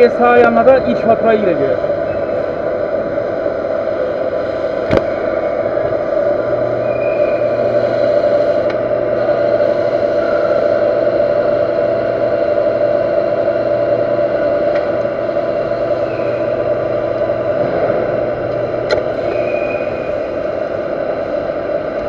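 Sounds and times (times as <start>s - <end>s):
metal lathe cutting iron: 0.0s - 22.0s.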